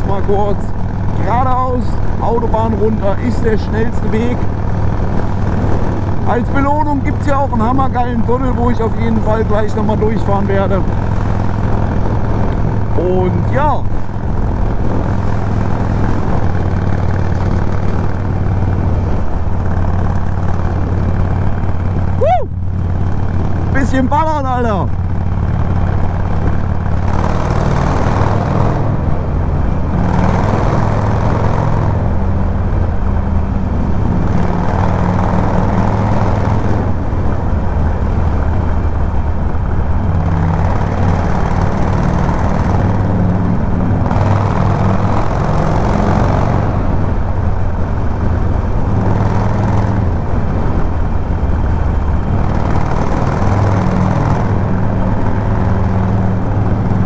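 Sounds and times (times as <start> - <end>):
motorcycle engine cruising: 0.0 - 57.0
rushing wind noise: 0.0 - 57.0.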